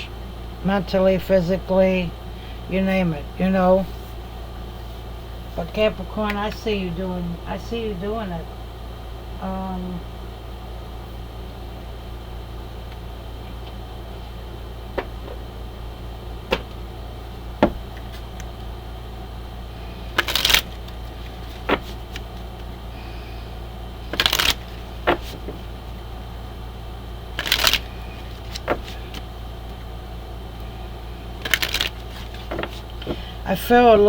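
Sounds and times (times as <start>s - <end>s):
cards tapping and clicking: 16.5s - 16.8s, 20.2s - 22.7s, 24.1s - 25.6s, 27.4s - 29.3s, 31.4s - 33.2s
cards being shuffled: 17.6s - 18.6s, 20.1s - 22.7s, 24.0s - 25.7s, 27.4s - 29.3s, 31.4s - 33.2s.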